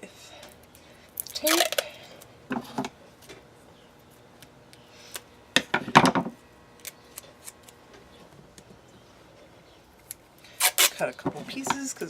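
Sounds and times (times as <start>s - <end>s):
scissors snipping duct tape: 10.6s - 11.0s.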